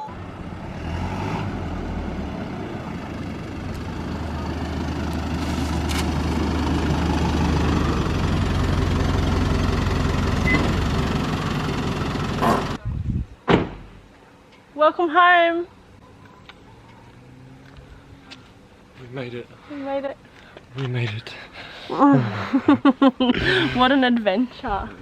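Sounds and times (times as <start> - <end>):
vehicle engine running: 0.0 - 12.8.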